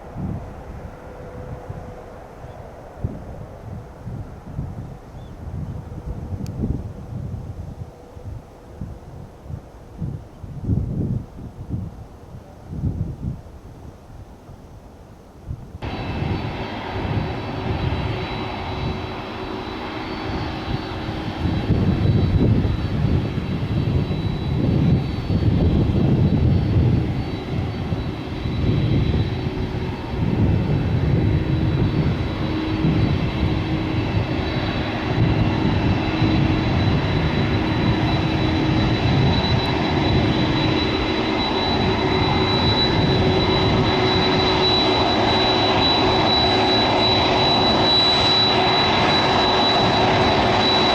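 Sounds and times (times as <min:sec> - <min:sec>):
jet engines rumbling: 0:00.0 - 0:14.4, 0:15.0 - 0:50.9
high jet engine whine: 0:00.0 - 0:50.9.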